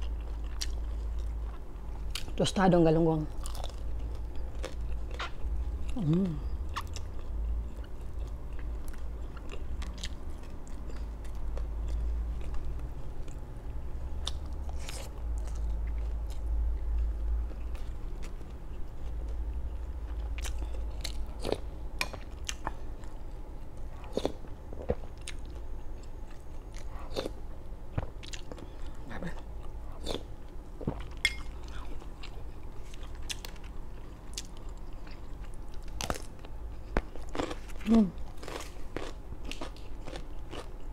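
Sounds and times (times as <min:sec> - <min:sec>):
steady low hum: 0:00.0 - 0:40.9
crunchy chewing: 0:03.3 - 0:13.4, 0:30.9 - 0:40.9.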